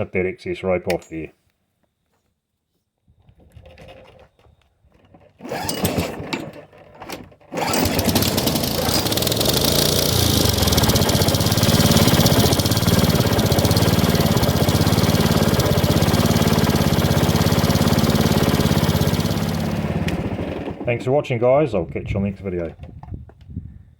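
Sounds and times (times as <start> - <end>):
lawn mower engine cranking: 3.6 - 21.2
lawn mower engine running: 5.0 - 21.2.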